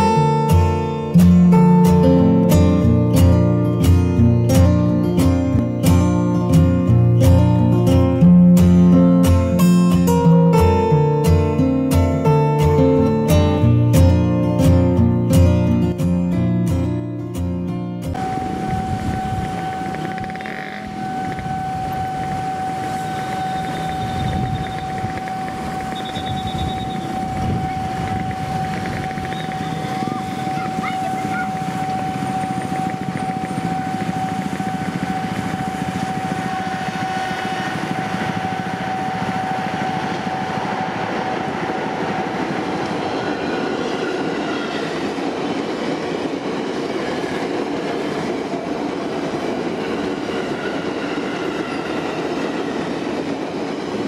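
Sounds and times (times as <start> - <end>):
electric train passing: 0.0 - 54.0
level-crossing warning tone: 18.1 - 54.0.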